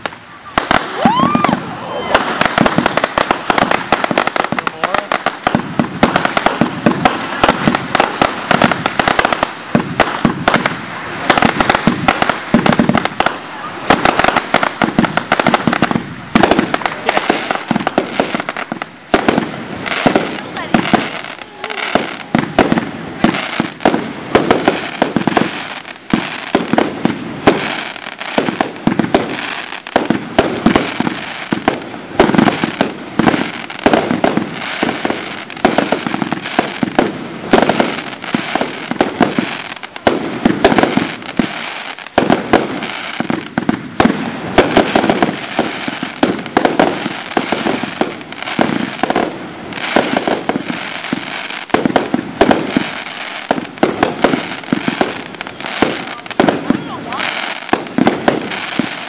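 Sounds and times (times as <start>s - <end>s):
fireworks barrage: 0.0s - 59.0s.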